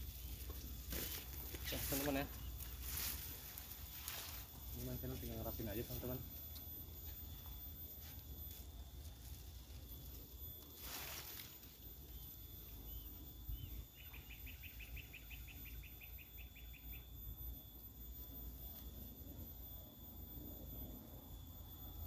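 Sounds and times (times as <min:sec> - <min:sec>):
small bird chirping: 0:12.1 - 0:17.2.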